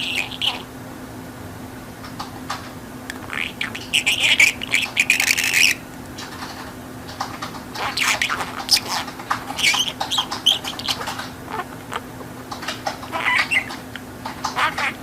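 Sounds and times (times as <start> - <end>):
budgerigar chattering: 0.0 - 0.7, 3.1 - 5.8, 7.7 - 15.0.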